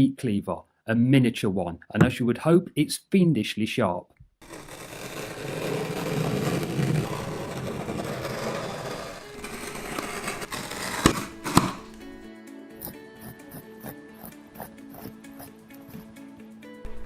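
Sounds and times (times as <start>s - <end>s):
background music: 6.8s - 17.0s.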